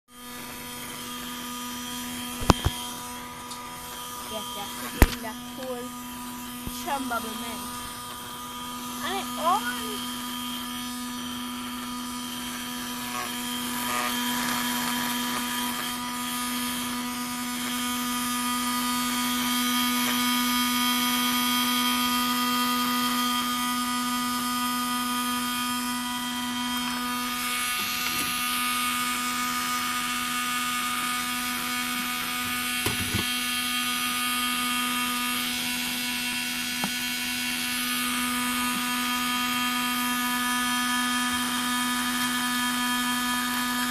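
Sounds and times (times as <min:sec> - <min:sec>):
drain pump whining hum: 0:00.1 - 0:43.9.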